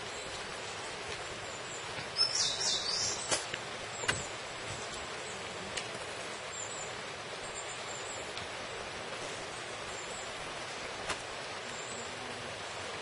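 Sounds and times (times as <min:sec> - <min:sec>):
bird chirping: 0:00.0 - 0:04.4
steady background hiss: 0:00.0 - 0:13.0.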